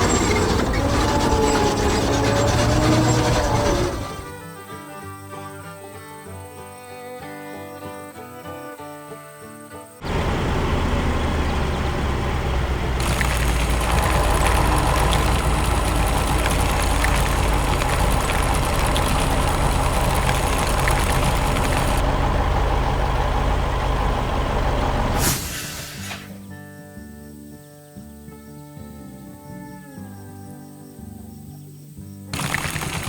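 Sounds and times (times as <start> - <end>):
heavy machinery engine rumbling: 0.0 - 4.4, 10.0 - 25.5
short sharp hiss: 25.2 - 26.4.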